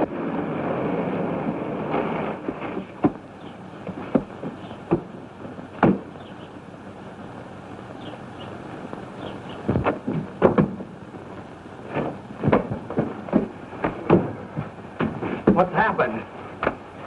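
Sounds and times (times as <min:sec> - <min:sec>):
film soundtrack hiss: 0:00.0 - 0:17.0
rushing rumble: 0:00.0 - 0:17.0
sharp knocks: 0:02.5 - 0:06.3, 0:09.6 - 0:10.9, 0:11.9 - 0:15.7, 0:16.6 - 0:16.8.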